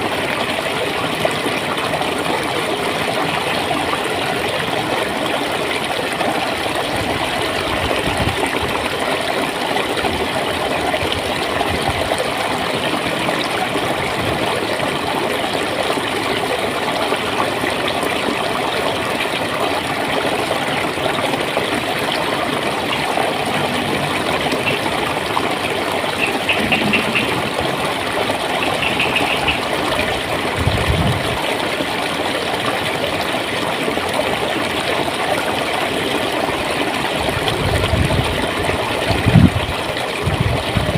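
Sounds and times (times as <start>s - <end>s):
stream water gurgling: 0.0s - 40.9s.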